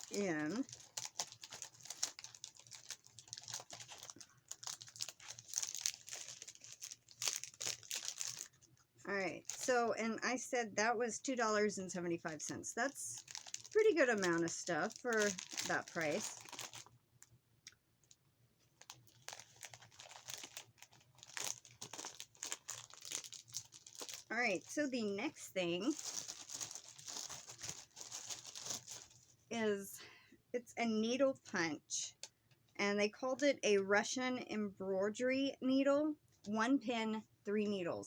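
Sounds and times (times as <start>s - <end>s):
crinkly packaging crackling: 0.0s - 10.0s, 11.2s - 29.5s.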